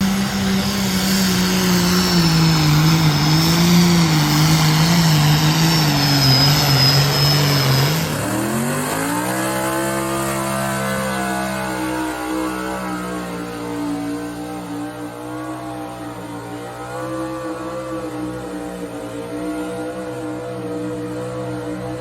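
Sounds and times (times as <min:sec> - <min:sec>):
tractor engine running hard: 0:00.0 - 0:22.0
clean rising tone: 0:00.2 - 0:09.9.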